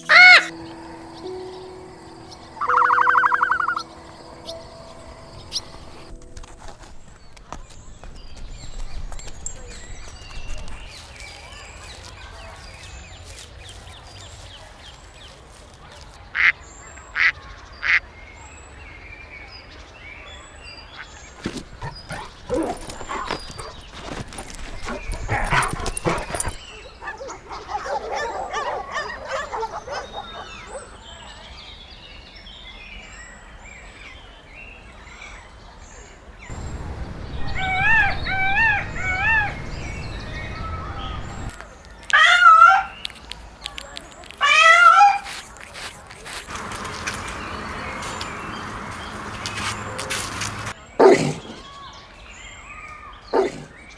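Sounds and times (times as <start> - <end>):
harsh animal calls with clicks: 0.0 - 0.7, 2.4 - 6.1, 21.4 - 30.7
loud wavering animal call: 0.0 - 6.1
short high animal calls: 0.1 - 0.5, 2.5 - 4.7.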